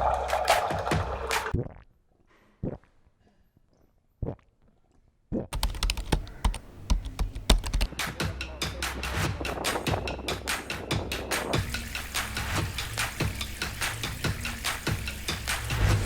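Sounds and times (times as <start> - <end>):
sharp clicks: 5.6 - 7.9
percussive music: 5.6 - 16.0.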